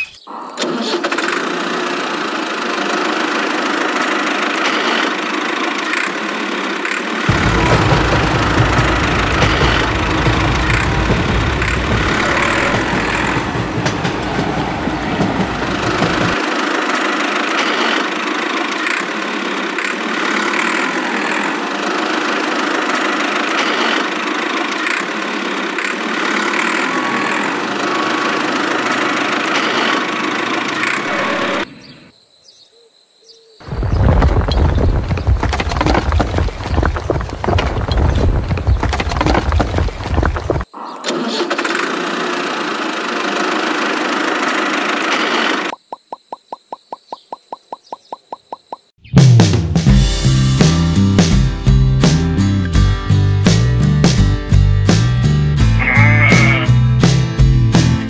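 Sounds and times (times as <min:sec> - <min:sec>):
vehicle engine running: 0:01.4 - 0:31.6, 0:41.7 - 0:45.8.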